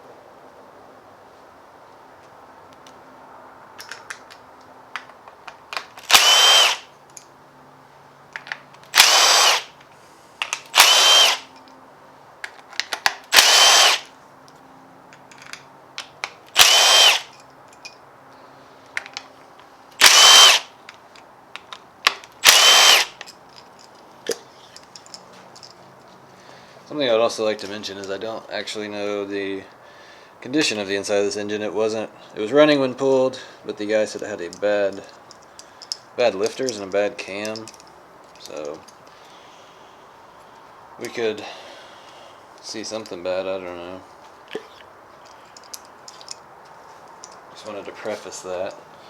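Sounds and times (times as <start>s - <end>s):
clicks and clinks of parts: 3.8s - 7.4s, 8.3s - 11.8s, 12.4s - 26.5s, 34.4s - 39.4s, 44.2s - 48.3s
power tool bursts: 6.0s - 6.9s, 8.9s - 9.8s, 10.7s - 11.5s, 13.3s - 14.1s, 16.5s - 17.3s, 20.0s - 20.8s, 22.4s - 23.2s.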